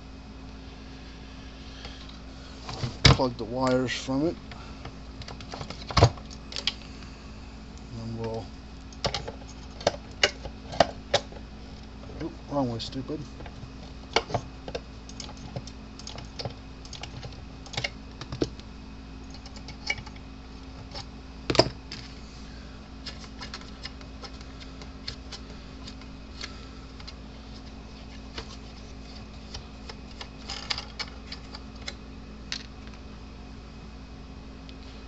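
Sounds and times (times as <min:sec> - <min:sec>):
steady low hum: 0:00.0 - 0:35.0
small parts clicking: 0:15.1 - 0:17.9.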